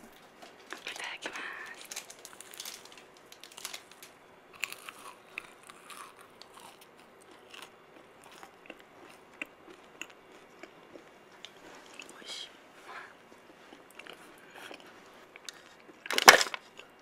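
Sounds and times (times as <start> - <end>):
crunching and chewing sweet: 0.4 - 12.3, 13.2 - 17.0.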